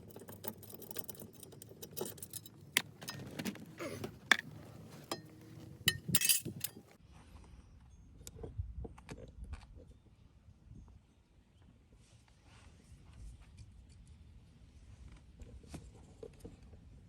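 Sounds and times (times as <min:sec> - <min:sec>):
small parts and tools clinking: 0:00.0 - 0:06.9.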